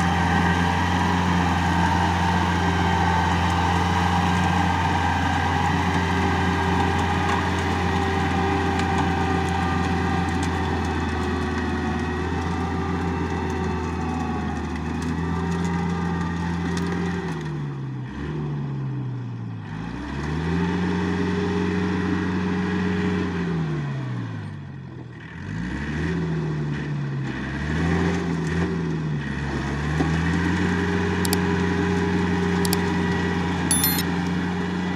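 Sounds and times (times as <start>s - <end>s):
tractor diesel engine: 0.0s - 16.6s.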